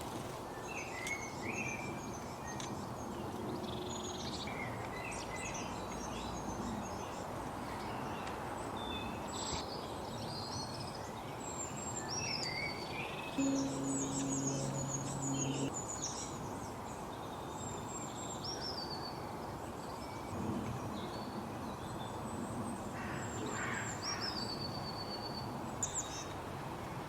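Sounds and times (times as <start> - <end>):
songbirds chirping: 0.6 - 15.7
outdoor background hiss: 13.2 - 15.8.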